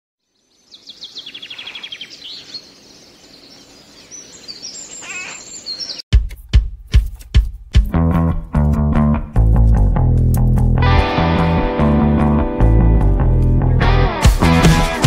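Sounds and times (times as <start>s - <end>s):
bird trilling and chirping: 0.6s - 6.0s
deep rhythmic music beat: 6.1s - 15.0s.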